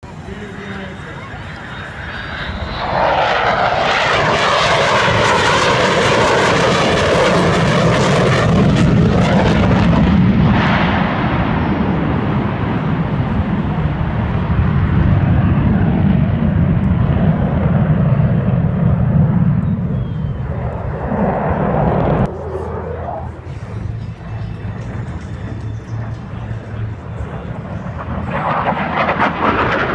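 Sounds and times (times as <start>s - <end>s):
jet aircraft roar: 0.0s - 29.9s.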